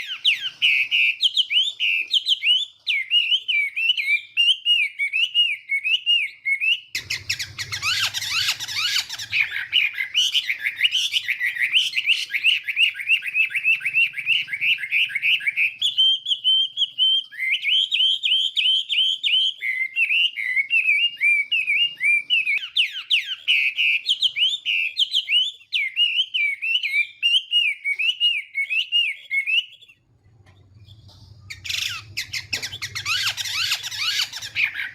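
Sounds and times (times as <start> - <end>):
bird singing whistled phrases: 0.0 - 34.9
low rumble: 30.1 - 33.2.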